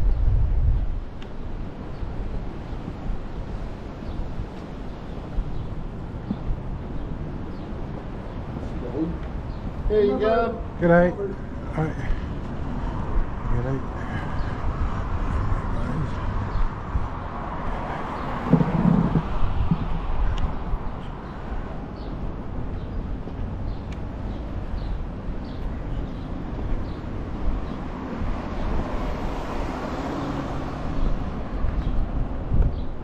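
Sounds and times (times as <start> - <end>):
traffic noise: 0.0 - 33.0
wind rumbling on microphone: 0.0 - 33.0
faint footsteps: 2.8 - 27.4.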